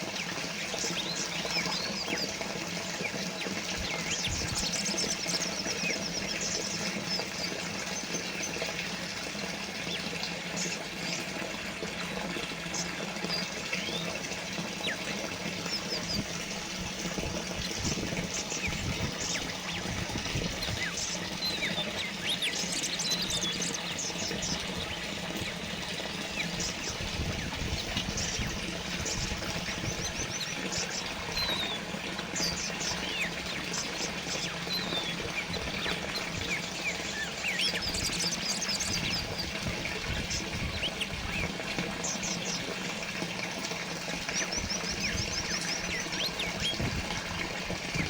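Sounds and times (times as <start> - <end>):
small birds chirping and trilling: 0.0 - 48.0
water fountain trickling: 0.0 - 48.0.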